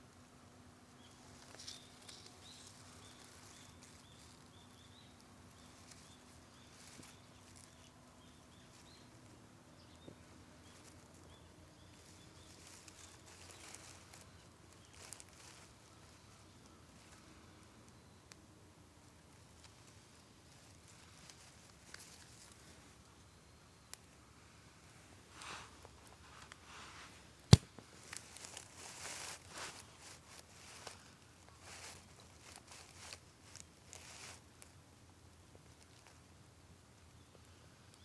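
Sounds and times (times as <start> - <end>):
bird chirping: 0.9 - 18.3.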